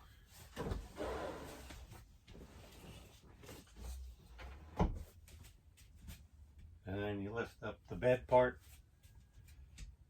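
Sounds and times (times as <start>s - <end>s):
rustling shuffle of bedding: 0.1s - 6.8s.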